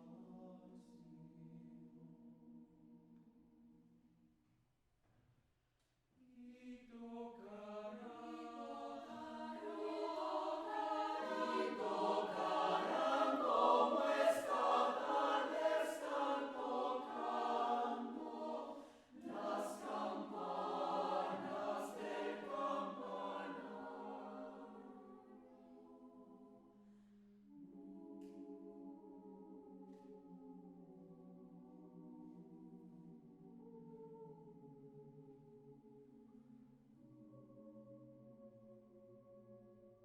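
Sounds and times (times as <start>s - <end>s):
choir singing a cappella: 0.0s - 2.9s, 6.3s - 26.8s.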